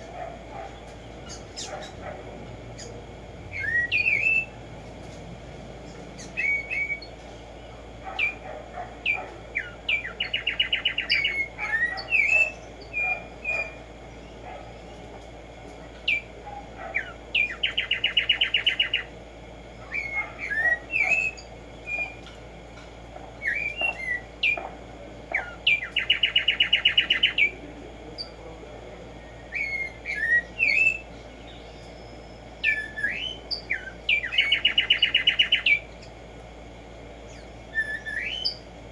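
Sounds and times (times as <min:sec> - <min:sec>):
sparrow singing whistles and trills: 0:02.8 - 0:04.6, 0:06.2 - 0:07.2, 0:09.0 - 0:14.4, 0:16.0 - 0:16.3, 0:16.9 - 0:19.1, 0:19.8 - 0:22.3, 0:23.4 - 0:24.6, 0:25.3 - 0:27.6, 0:29.3 - 0:36.0, 0:37.3 - 0:38.7.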